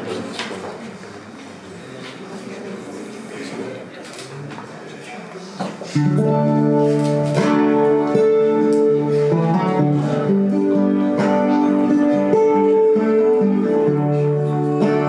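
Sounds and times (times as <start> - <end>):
acoustic guitar chords: 6.0 - 15.0.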